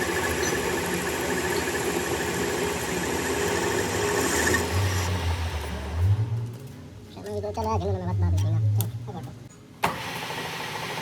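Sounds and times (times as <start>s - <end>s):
workshop machinery high whine: 0.0s - 7.1s
machinery low hum: 0.0s - 9.5s.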